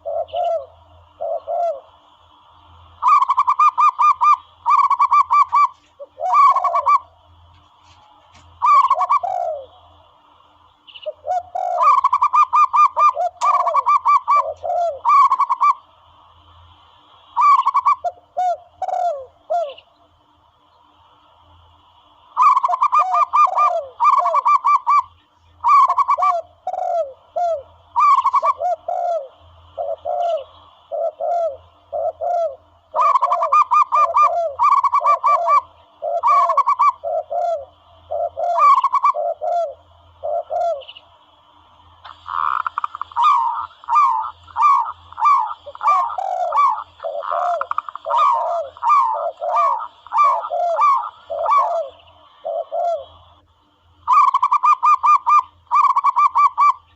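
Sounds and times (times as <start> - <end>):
dove cooing calls: 0.0 - 20.0, 22.2 - 56.9
lower answering dove notes: 41.6 - 56.7.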